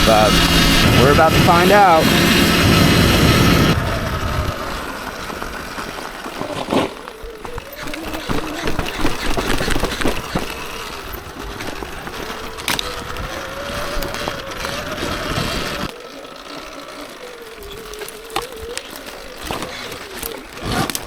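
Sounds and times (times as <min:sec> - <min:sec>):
electric motor whine: 0:00.0 - 0:21.0
tyres rumbling on trail: 0:00.0 - 0:21.0.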